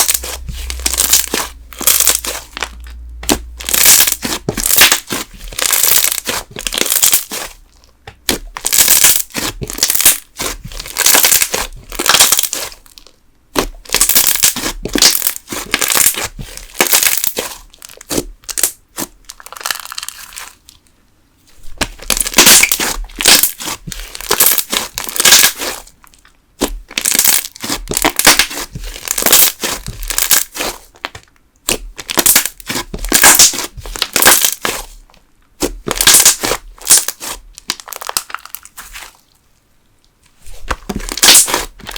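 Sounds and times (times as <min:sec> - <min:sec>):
slime crackling with bubble pops: 0:21.8 - 0:25.7, 0:26.6 - 0:34.8, 0:35.6 - 0:38.8.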